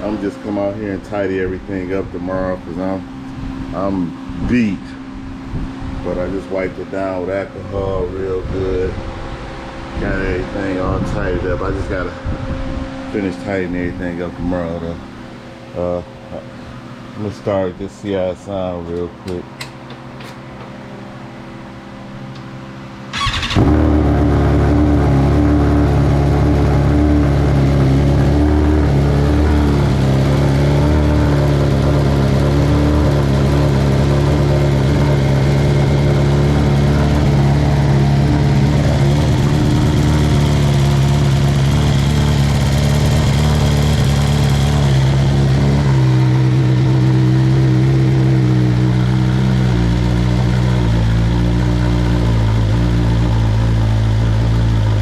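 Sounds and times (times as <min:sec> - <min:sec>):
motorcycle engine cranking: 0:23.1 - 0:24.3
motorcycle engine idling: 0:23.1 - 0:55.0.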